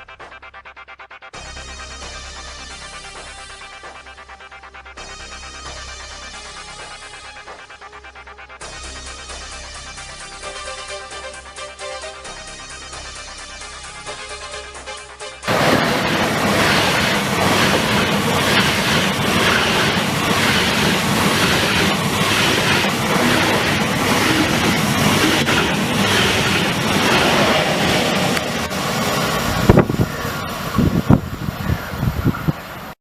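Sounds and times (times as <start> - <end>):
train rail and wheel noise: 13.5 - 33.0.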